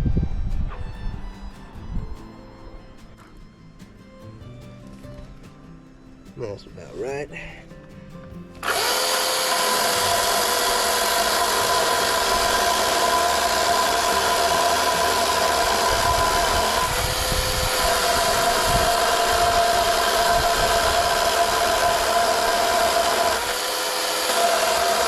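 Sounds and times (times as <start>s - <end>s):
two-stroke chainsaw running: 8.6s - 25.0s.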